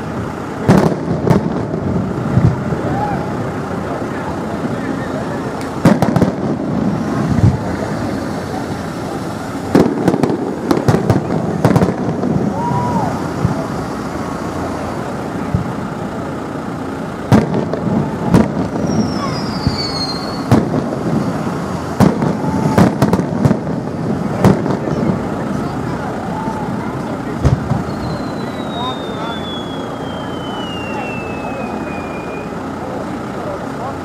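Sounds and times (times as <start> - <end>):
fireworks bursting with sharp bangs: 0.0 - 32.8
steady background noise: 0.0 - 34.0
firework whistle falling in pitch: 18.8 - 20.5, 27.7 - 32.6.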